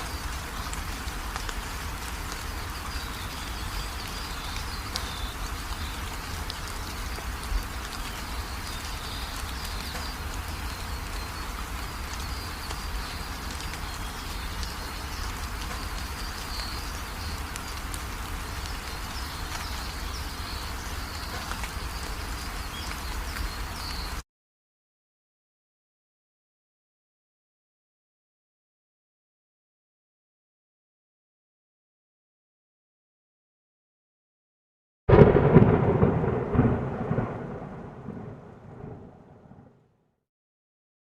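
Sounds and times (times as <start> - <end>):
birds chirping: 0.0 - 24.2
rain pattering: 0.0 - 24.2, 35.1 - 39.8.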